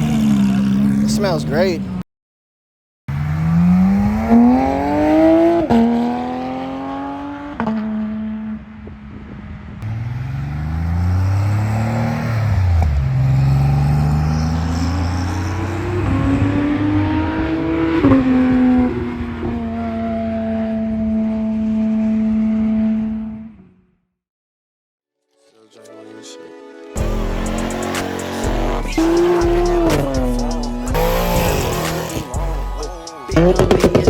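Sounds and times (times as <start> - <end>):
car engines accelerating hard: 0.0 - 2.0, 3.1 - 23.5, 27.0 - 34.0
lower engine sound: 27.0 - 34.0.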